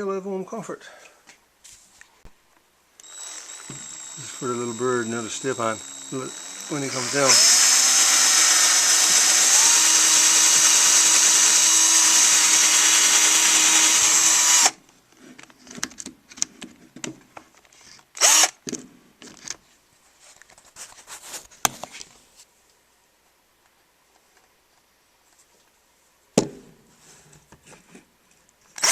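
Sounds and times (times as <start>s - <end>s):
electric drill whining: 3.0s - 14.8s, 18.2s - 18.6s.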